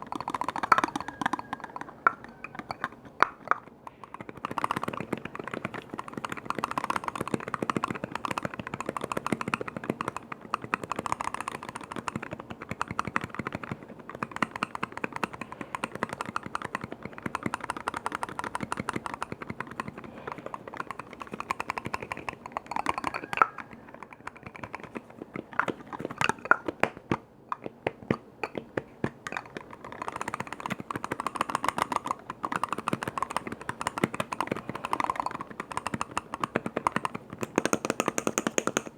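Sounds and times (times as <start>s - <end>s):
tapping on containers and lids: 0.0s - 8.5s, 18.6s - 38.9s.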